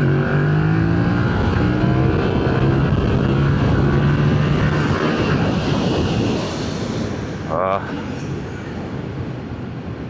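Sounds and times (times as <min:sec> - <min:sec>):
motorcycle engine while riding: 0:00.0 - 0:06.6.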